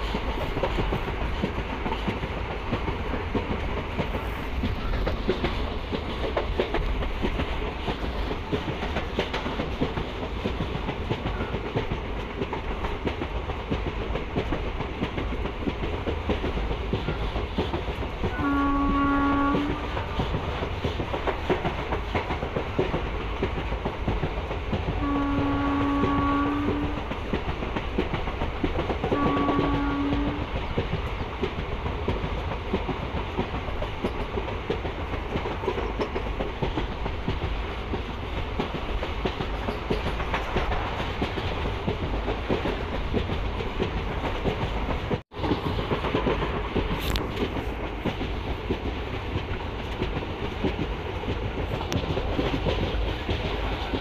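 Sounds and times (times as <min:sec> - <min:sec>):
train rumble and rail clatter: 0:00.0 - 0:54.0
locomotive horn blasts: 0:18.3 - 0:20.1, 0:25.0 - 0:27.1, 0:29.1 - 0:30.5.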